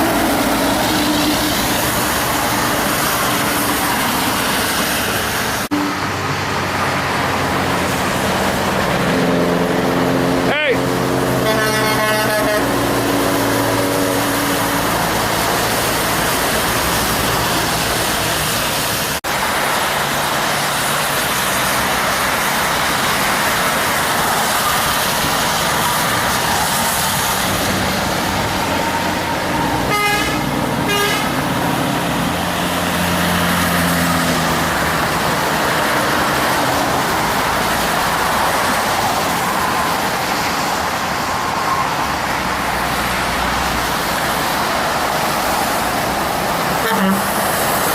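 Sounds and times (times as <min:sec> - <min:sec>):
traffic passing at speed: 0:00.0 - 0:47.9
truck horn: 0:09.2 - 0:15.2, 0:29.5 - 0:31.7, 0:46.8 - 0:47.6.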